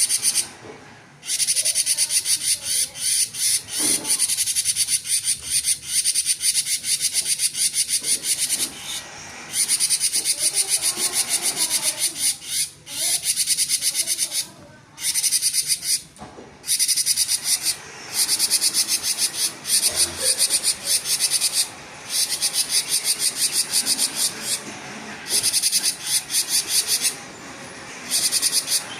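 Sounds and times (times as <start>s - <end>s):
bird singing buzzy trill: 16.6s - 24.6s, 28.0s - 28.9s.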